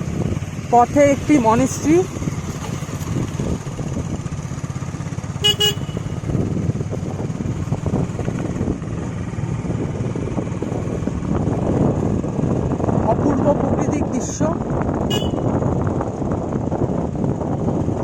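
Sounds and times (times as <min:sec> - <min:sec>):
motorcycle engine running: 0:00.0 - 0:18.0
motorcycle horn toot: 0:05.4 - 0:06.3, 0:15.1 - 0:15.6.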